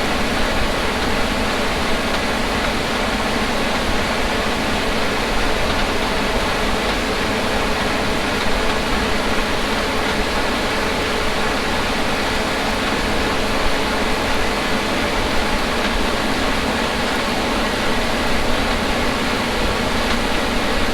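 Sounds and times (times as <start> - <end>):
harvest machinery running: 0.0 - 20.9.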